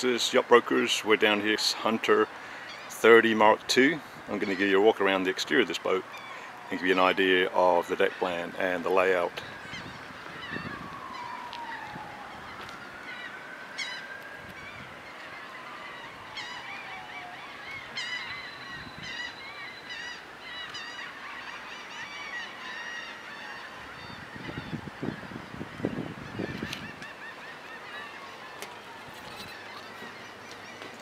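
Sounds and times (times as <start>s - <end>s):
birds calling: 1.2s - 31.0s
long gliding whistles: 10.4s - 20.3s.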